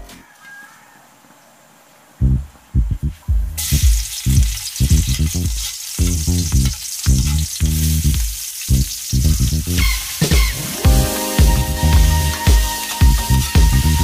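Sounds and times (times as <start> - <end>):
bass-heavy background music: 2.2 - 14.0
garlic sizzling in hot oil: 3.6 - 10.7.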